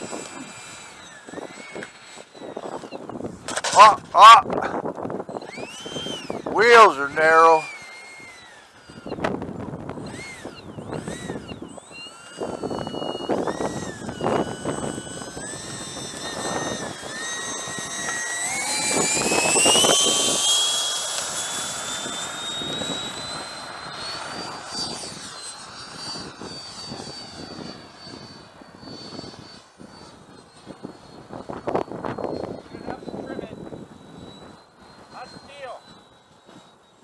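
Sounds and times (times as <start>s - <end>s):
electric ducted fan whining: 0.0s - 37.0s.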